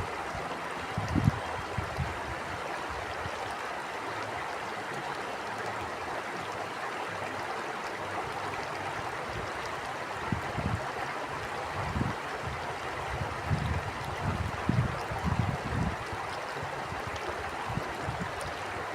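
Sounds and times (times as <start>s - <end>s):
wind rumbling on microphone: 0.0s - 3.4s, 10.2s - 18.9s
stream water rushing: 0.0s - 18.9s.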